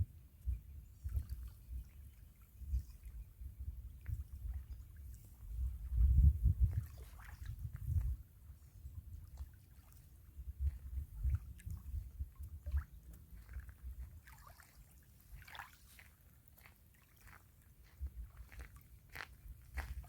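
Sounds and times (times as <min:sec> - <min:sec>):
waves lapping at shore: 0:06.7 - 0:07.6, 0:08.5 - 0:11.9, 0:12.6 - 0:20.0.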